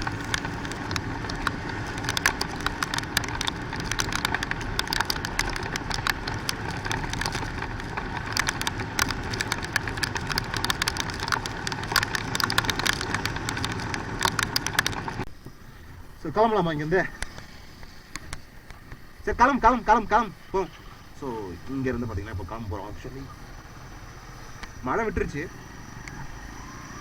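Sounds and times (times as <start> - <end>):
raindrops clicking on microphone: 0.0 - 15.5, 16.9 - 27.0
motorcycle engine running: 0.0 - 16.2.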